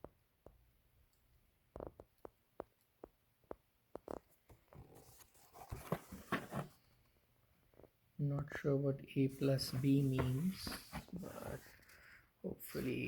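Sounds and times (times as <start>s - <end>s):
rustling and scraping: 4.1s - 7.0s, 9.3s - 12.1s.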